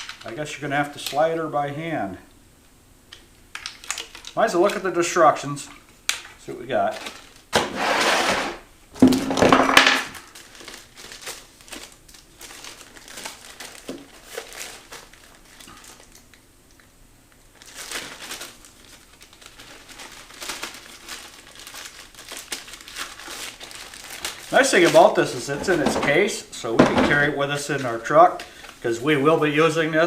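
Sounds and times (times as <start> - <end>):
packaging crinkling and rustling: 0.0 - 1.3, 3.6 - 4.9, 5.7 - 7.6, 9.0 - 16.9, 17.5 - 26.5
small crackles and clicks: 3.1 - 4.8.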